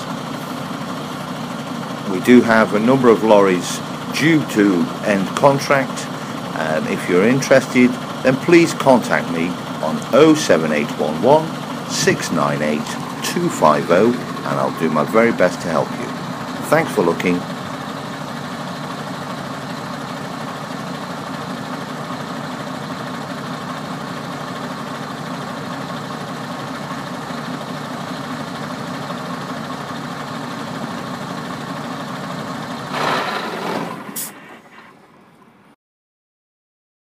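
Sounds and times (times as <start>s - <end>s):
diesel engine idling: 0.0s - 35.7s
brief loud noise: 32.9s - 35.0s.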